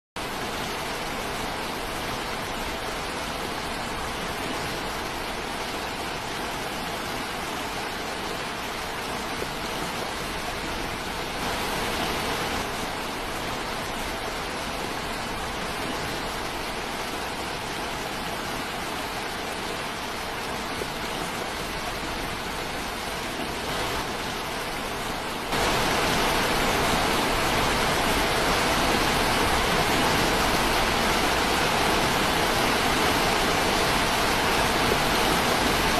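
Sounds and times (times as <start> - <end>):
rushing water: 0.2 - 35.9.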